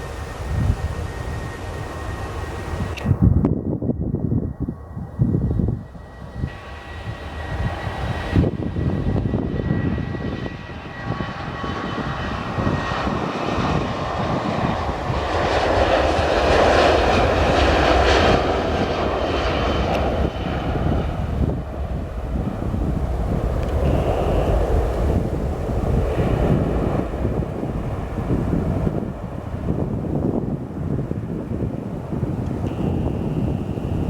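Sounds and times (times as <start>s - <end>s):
jet engines rushing past: 0.0s - 34.0s
thin steady whine: 0.0s - 34.0s.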